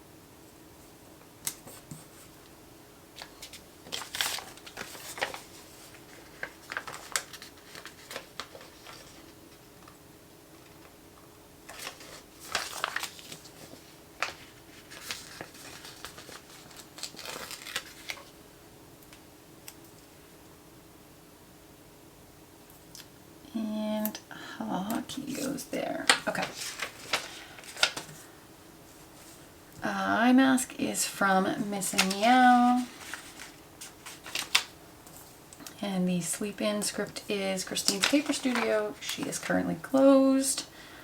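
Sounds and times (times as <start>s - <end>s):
faint room hum: 0.0s - 41.0s
paper crinkling and peeling: 3.2s - 9.3s, 11.7s - 18.3s, 26.2s - 28.2s, 31.8s - 35.2s, 37.7s - 39.5s.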